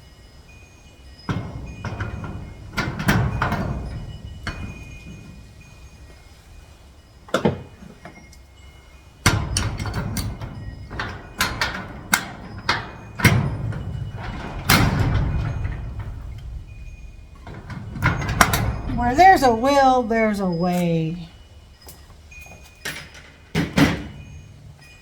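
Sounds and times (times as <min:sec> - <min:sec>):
metal clatter: 0:01.2 - 0:20.7
metal lock hardware clanking: 0:09.2 - 0:21.0.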